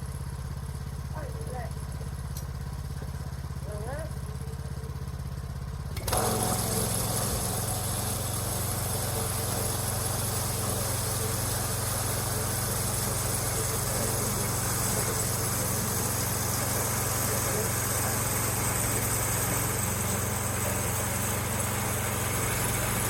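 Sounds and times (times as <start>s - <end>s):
small gas engine running: 0.0s - 23.0s.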